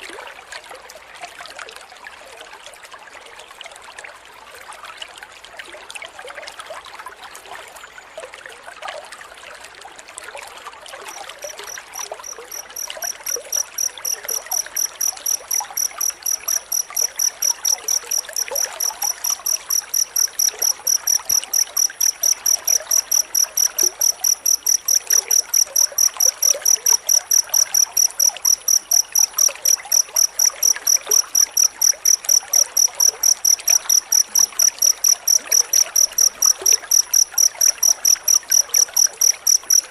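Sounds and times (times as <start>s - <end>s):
water trickling: 0.0s - 39.9s
cricket chirping trill: 11.1s - 39.9s.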